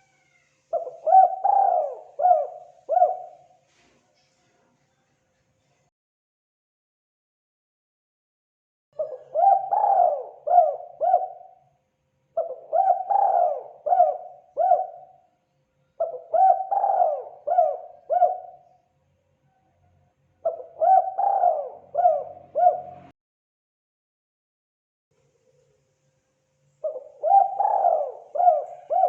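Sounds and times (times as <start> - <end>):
dove cooing: 0.7 - 3.6, 9.0 - 11.6, 12.4 - 15.2, 16.0 - 18.8, 20.4 - 23.1, 26.8 - 29.0.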